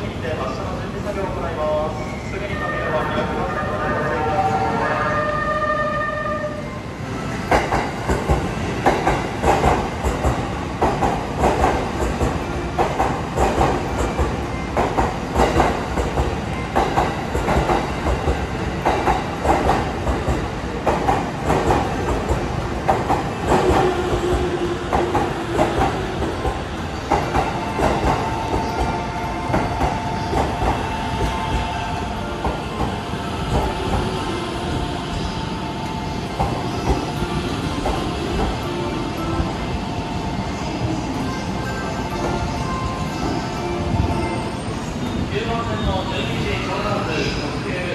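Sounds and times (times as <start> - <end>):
train running rumble: 7.4 - 47.9
train wheels clacking over rail joints: 7.5 - 28.9.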